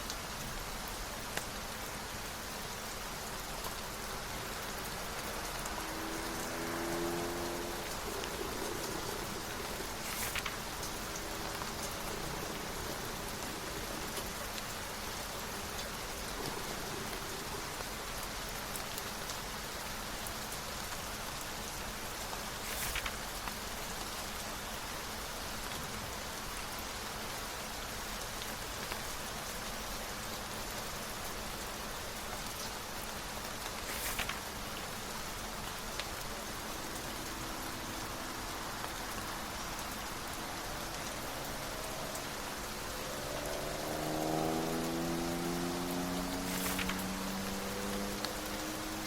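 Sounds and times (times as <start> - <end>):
rain pattering: 0.0 - 49.0.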